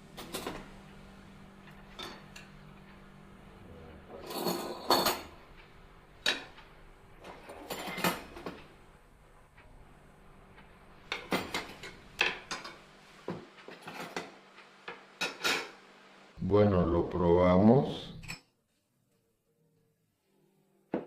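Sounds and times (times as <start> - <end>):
dishes and cutlery clinking: 0.2 - 0.7, 4.1 - 8.7, 11.1 - 15.8.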